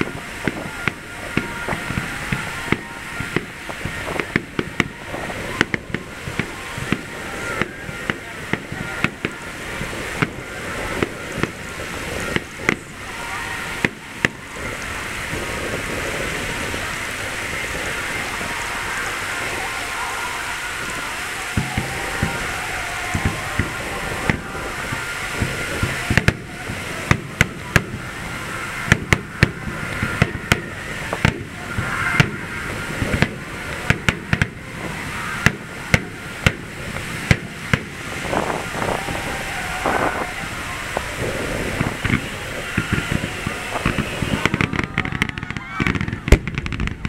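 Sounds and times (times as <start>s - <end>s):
firework shells bursting: 21.5s - 47.0s.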